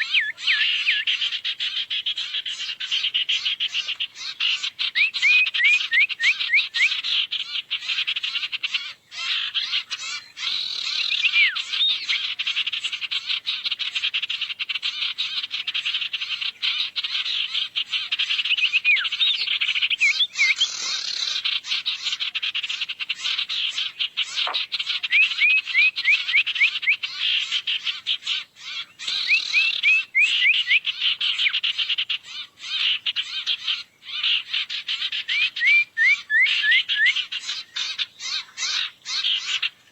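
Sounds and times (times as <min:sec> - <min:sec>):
bird chattering trill: 0:00.0 - 0:01.2, 0:18.0 - 0:21.4, 0:28.6 - 0:31.7.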